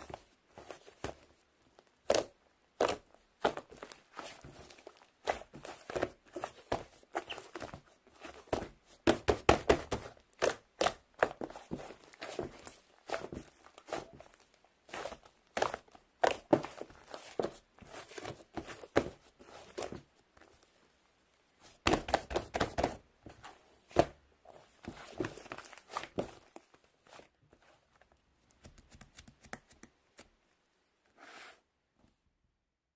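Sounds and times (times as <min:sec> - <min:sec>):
rustling scrapes: 0:31.1 - 0:31.7.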